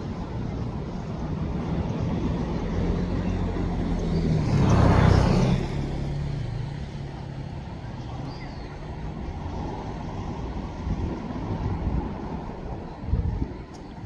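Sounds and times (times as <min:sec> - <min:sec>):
road noise: 0:00.0 - 0:14.0
vehicle engine hum: 0:00.0 - 0:14.0
vehicle passing by: 0:01.7 - 0:08.3.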